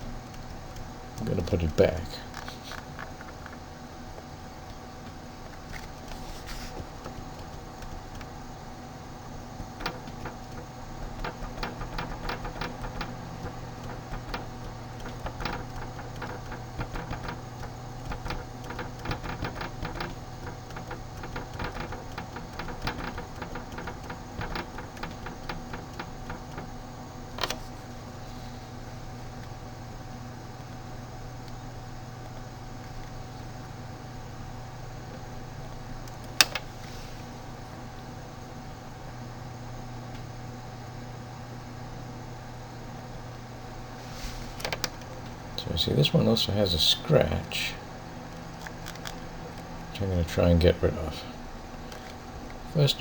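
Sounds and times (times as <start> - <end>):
steady low hum: 0.0 - 53.0
mouse and keyboard clicking: 5.6 - 8.4, 9.6 - 26.7, 48.6 - 49.7.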